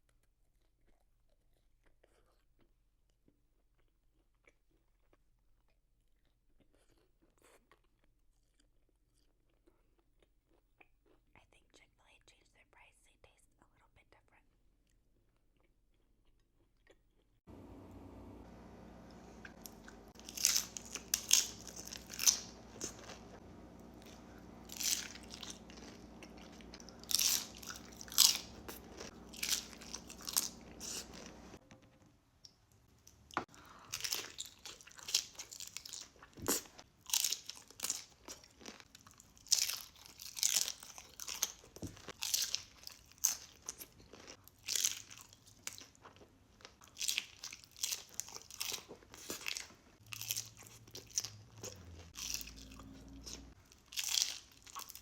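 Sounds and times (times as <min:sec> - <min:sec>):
tortilla chips crunching: 0:19.4 - 0:31.6, 0:33.5 - 0:55.0.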